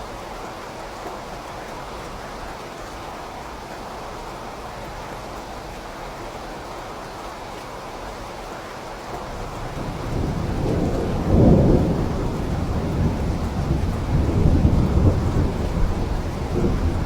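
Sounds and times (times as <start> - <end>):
steady rain falling: 0.0 - 17.0
low roll of thunder: 9.3 - 17.0.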